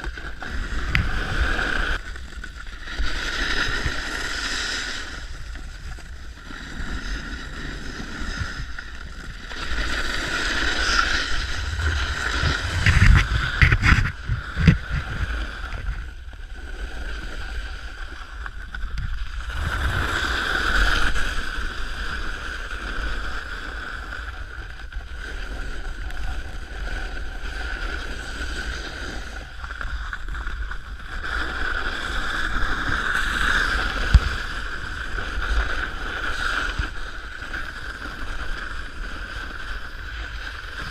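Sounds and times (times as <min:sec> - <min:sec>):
snowboard scraping on icy snow: 0:00.0 - 0:40.9
wind buffeting microphone: 0:07.4 - 0:16.3.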